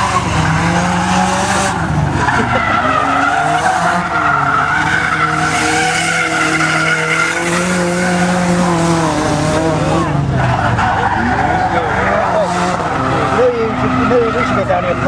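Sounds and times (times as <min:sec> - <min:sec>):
car engine at high revs: 0:00.0 - 0:15.0
tyres squealing: 0:01.7 - 0:08.4.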